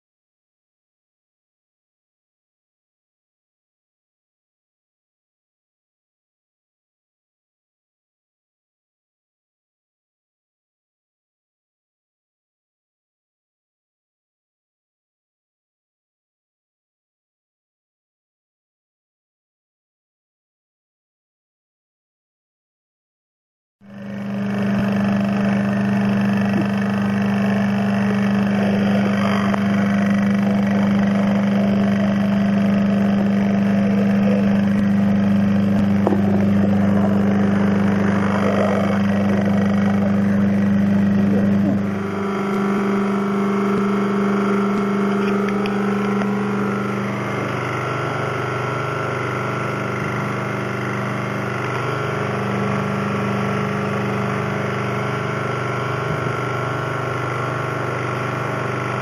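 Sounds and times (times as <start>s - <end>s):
electric motor humming: 23.9s - 59.0s.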